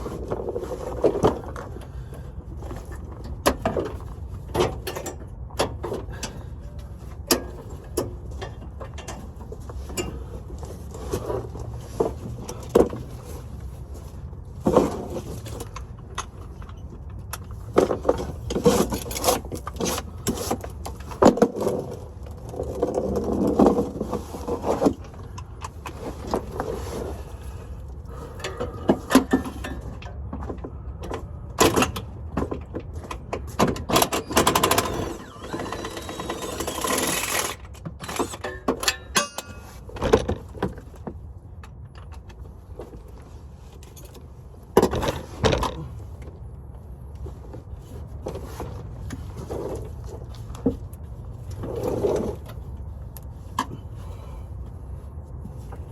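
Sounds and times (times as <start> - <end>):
metallic tool clanks and scrapes: 38.0 - 40.0.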